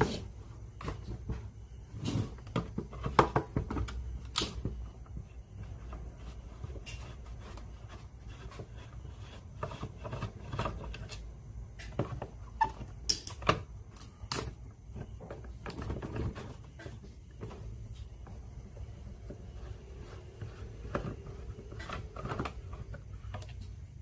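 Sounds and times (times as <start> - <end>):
steady low hum: 0.0 - 24.0
tools and small parts clicking: 3.8 - 4.7, 13.1 - 14.6.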